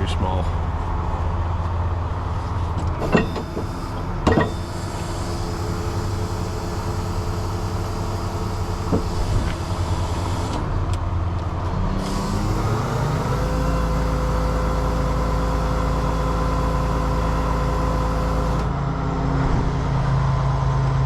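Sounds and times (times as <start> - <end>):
truck diesel engine running: 0.0 - 19.4
sharp metallic knocks: 3.0 - 4.8.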